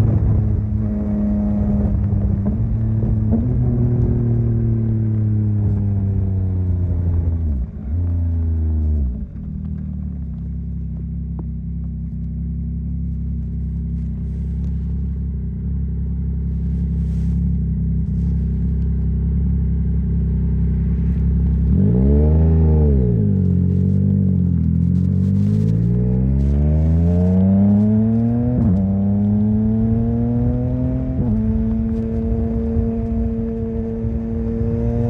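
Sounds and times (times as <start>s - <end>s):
motorcycle engine slowing and revving: 0.0s - 35.0s.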